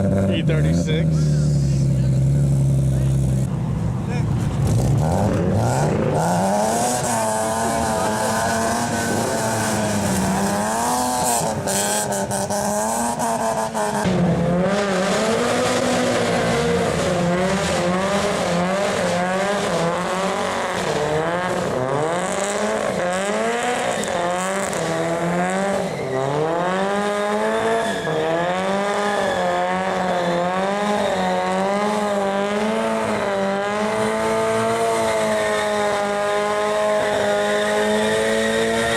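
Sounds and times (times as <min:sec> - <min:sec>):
car engine revving hard: 0:04.6 - 0:38.9.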